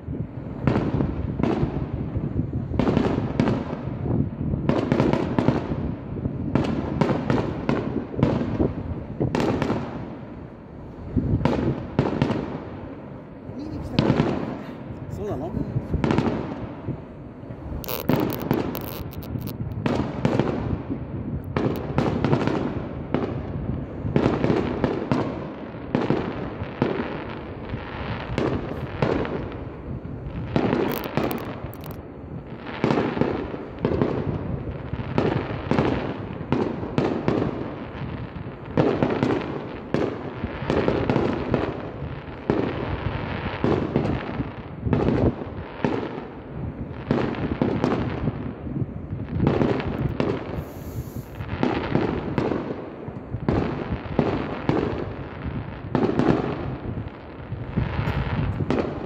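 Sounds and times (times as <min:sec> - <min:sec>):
firework shells booming: 0:13.8 - 0:23.4, 0:24.0 - 0:59.0.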